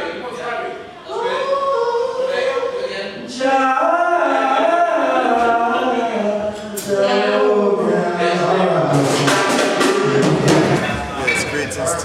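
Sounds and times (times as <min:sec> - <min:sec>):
voices singing unaccompanied: 0:00.0 - 0:12.0.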